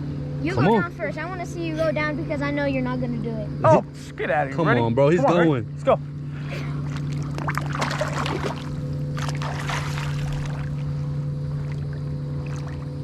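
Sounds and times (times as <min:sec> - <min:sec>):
steady low hum: 0:00.0 - 0:13.0
water splashing and bubbling: 0:06.6 - 0:13.0.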